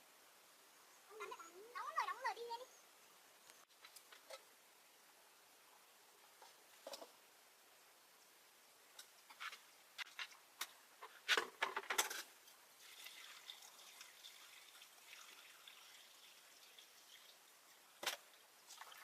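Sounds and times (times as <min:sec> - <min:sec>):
sharp knocks and clatters: 0:09.3 - 0:12.3
water trickling: 0:12.4 - 0:19.0.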